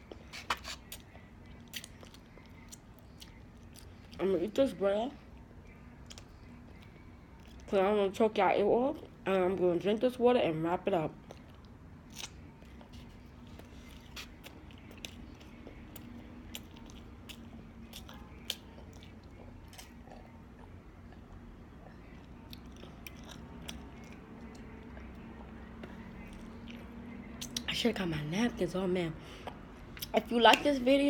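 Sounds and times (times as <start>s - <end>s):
faint steady hum: 0.0s - 31.0s
chewing clicks and smacks: 0.1s - 4.2s, 6.0s - 7.7s, 14.2s - 27.7s.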